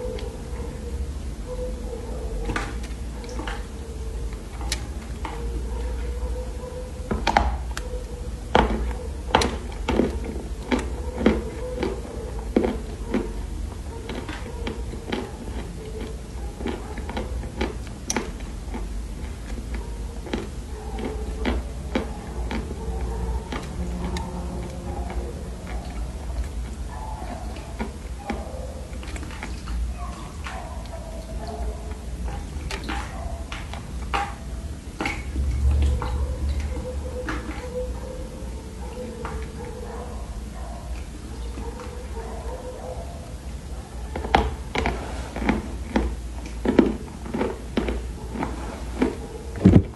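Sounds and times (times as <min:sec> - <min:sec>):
clay crunching as chewed: 0:08.6 - 0:13.4, 0:14.1 - 0:29.8, 0:44.2 - 0:49.2
low hum: 0:34.5 - 0:40.3
low rumble: 0:35.2 - 0:38.0.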